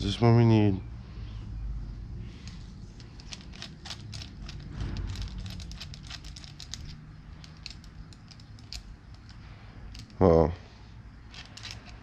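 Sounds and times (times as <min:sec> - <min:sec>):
clicks and rattles of metal parts: 0:03.0 - 0:10.2, 0:11.3 - 0:12.0.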